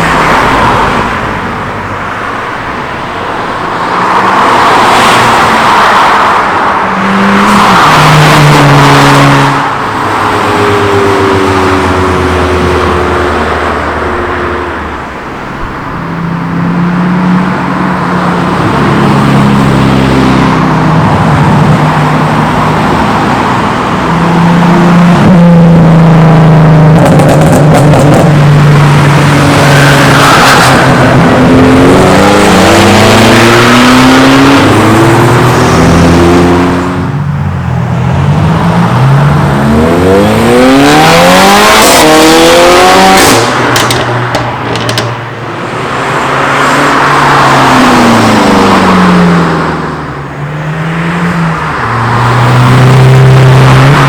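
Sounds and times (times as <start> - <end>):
car accelerating hard: 0.0 - 15.1, 15.7 - 37.2, 37.8 - 43.9, 45.4 - 54.0
car engines revving: 0.0 - 54.0.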